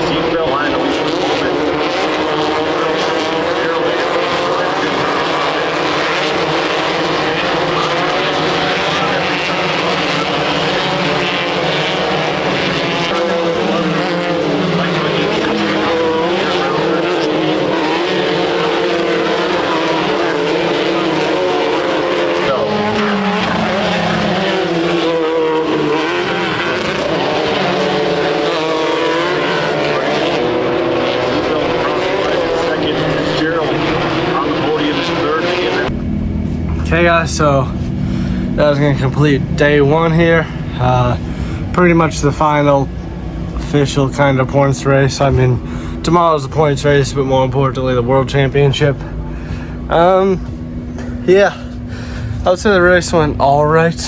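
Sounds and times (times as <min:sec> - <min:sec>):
buggy engine at high revs: 0:00.0 - 0:54.0.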